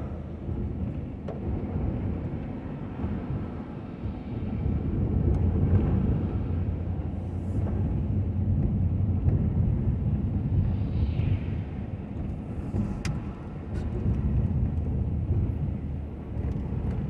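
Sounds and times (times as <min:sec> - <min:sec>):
truck engine and road noise: 0:00.0 - 0:17.0.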